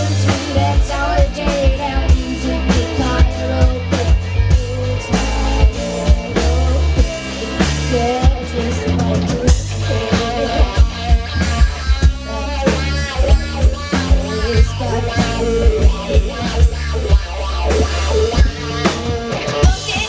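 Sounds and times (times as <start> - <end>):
drum kit beat: 0.0 - 20.0
guitar: 0.0 - 20.0
heavy bass line: 0.0 - 20.0
person singing: 0.0 - 20.0.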